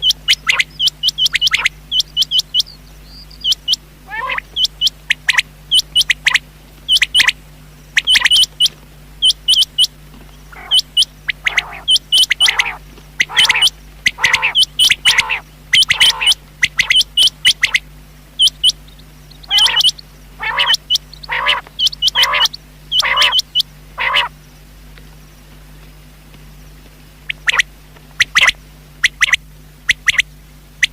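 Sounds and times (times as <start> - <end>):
quail calling high notes: 0.0 - 7.4, 8.0 - 24.4, 27.3 - 30.9
lower longer bird notes: 0.0 - 24.6
steady low hum: 0.0 - 30.9.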